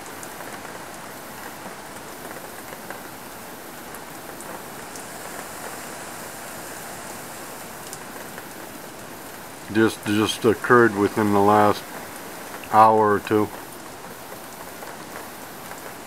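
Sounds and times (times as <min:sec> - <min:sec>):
rain hissing: 0:00.0 - 0:16.0
raindrops ticking: 0:00.0 - 0:16.0
strong wind: 0:03.2 - 0:10.0.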